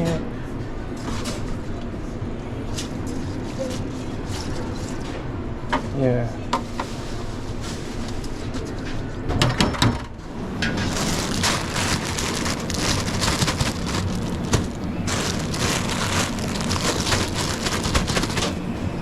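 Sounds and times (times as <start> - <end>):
kitchen utensils clattering: 10.5 - 19.0.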